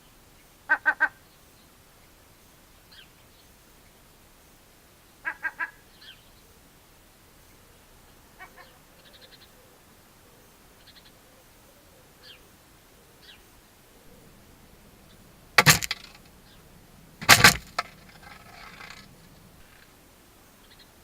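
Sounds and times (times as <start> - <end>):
loud clattering knocks: 15.5 - 16.4, 17.1 - 19.6.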